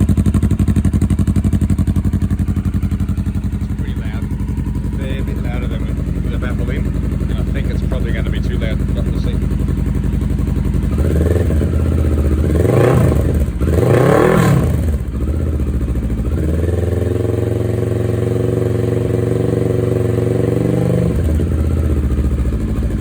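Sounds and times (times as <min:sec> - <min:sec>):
motorcycle engine idling and revving: 0:00.0 - 0:23.0.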